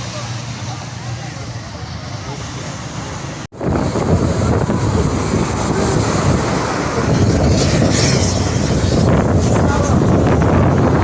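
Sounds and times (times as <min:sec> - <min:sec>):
sea waves on the shore: 0:00.0 - 0:11.0
wind buffeting microphone: 0:03.5 - 0:11.0.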